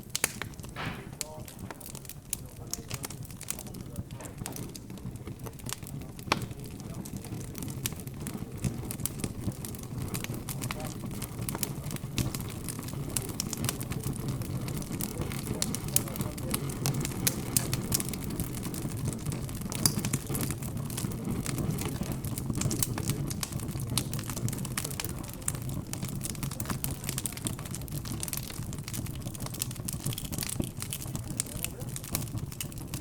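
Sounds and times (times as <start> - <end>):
fire crackling and popping: 0.0 - 33.0
murmur of background chatter: 0.2 - 33.0.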